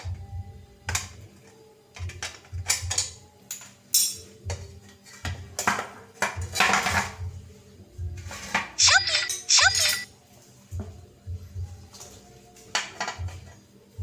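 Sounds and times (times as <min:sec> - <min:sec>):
metal tools clinking and knocking: 0:08.8 - 0:10.1.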